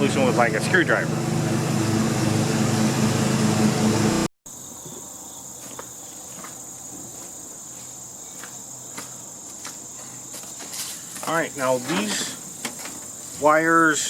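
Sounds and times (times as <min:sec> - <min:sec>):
insects chirring: 0:04.5 - 0:14.0.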